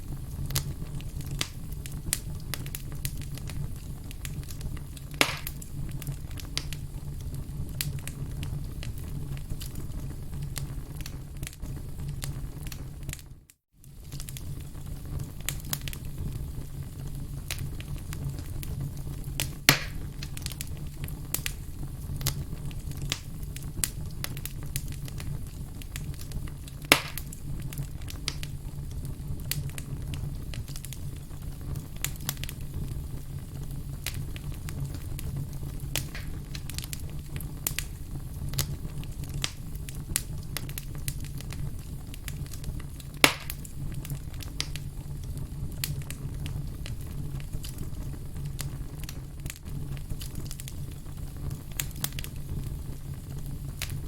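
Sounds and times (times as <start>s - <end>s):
campfire crackling: 0.0s - 54.0s
fire popping: 0.0s - 54.0s.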